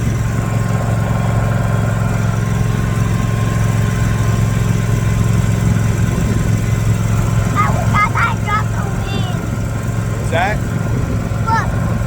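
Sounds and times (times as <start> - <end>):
riding mower engine running: 0.0 - 12.0.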